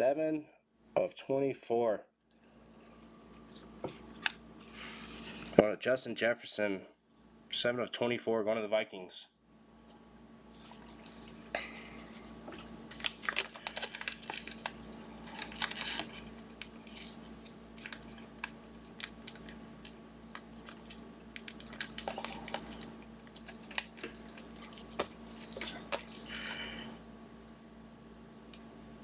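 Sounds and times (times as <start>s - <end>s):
faint steady hum: 0.0s - 29.0s
plastic packaging rustling: 10.5s - 26.9s.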